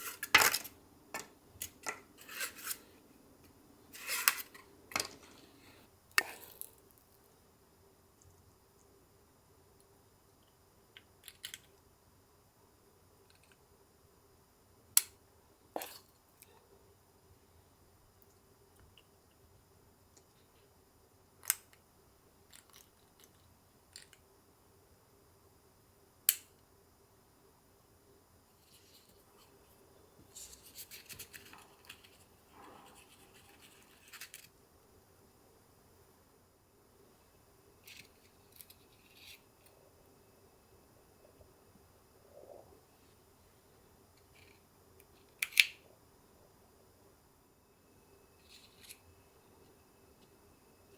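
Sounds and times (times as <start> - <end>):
light crinkling and scraping: 0.0 - 6.8, 28.5 - 34.6, 37.8 - 39.8
scrape or rustle: 2.2 - 3.0, 3.9 - 4.6, 28.6 - 29.5, 30.3 - 34.5.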